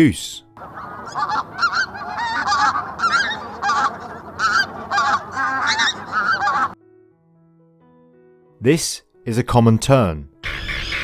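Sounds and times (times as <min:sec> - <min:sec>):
geese honking: 0:00.6 - 0:06.8, 0:10.4 - 0:11.0.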